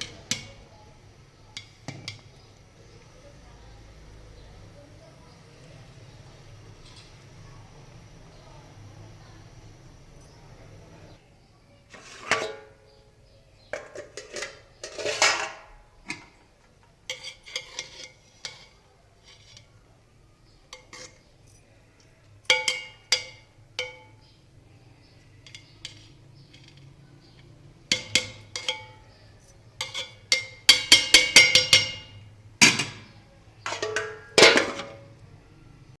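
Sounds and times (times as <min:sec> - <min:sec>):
metal spoon scraping cooking pot: 0:00.0 - 0:03.2, 0:11.9 - 0:13.0, 0:13.6 - 0:35.2.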